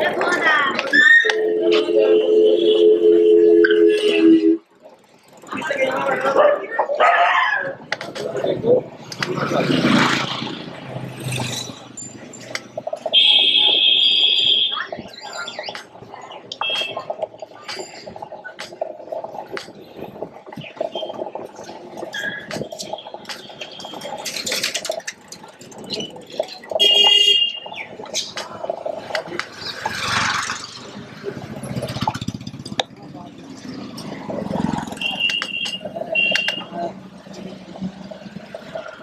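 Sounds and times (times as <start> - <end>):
street traffic noise: 0.0 - 39.0
high-pitched electric horn: 1.2 - 4.6
vehicle passing: 4.0 - 13.2, 28.5 - 39.0.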